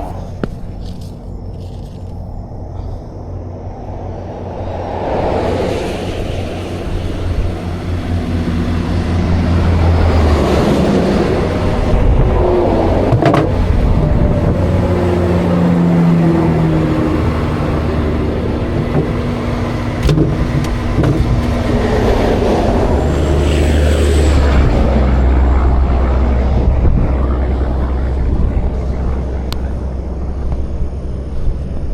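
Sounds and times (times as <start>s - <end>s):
traffic passing close by: 0.0s - 31.9s
sharp metallic knocks: 20.0s - 21.7s.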